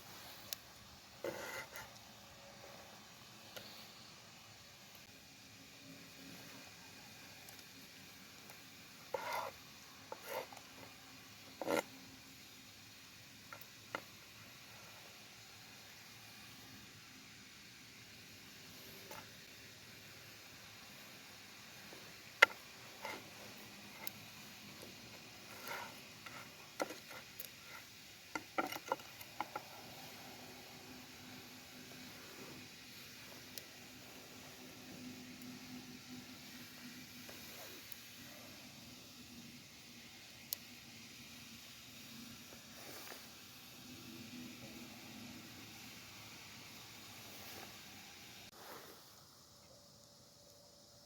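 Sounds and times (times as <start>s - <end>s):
faint steady hiss: 0.0s - 51.0s
clicks and scrapes: 1.2s - 2.1s, 8.5s - 11.9s, 22.4s - 30.2s.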